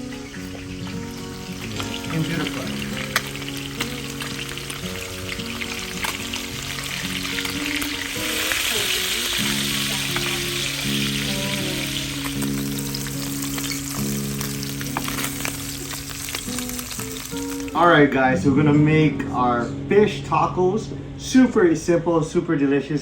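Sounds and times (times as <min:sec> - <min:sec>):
fish frying in hot oil: 0:00.0 - 0:17.8.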